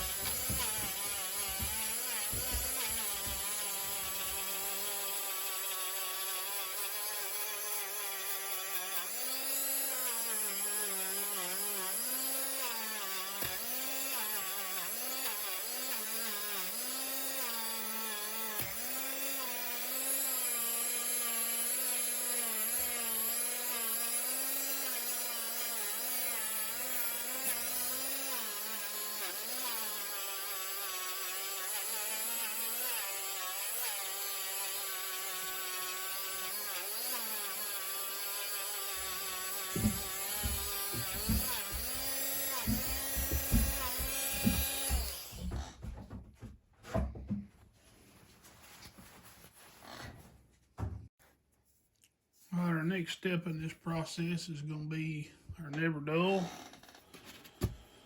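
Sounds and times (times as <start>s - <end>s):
power tool motor whine: 0.0s - 45.7s.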